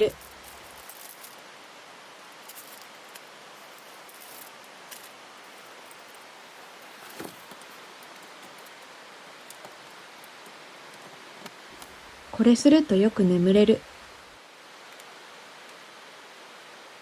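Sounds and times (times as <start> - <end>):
faint rustles and clicks: 0.0 - 12.1
background hiss: 0.0 - 17.0.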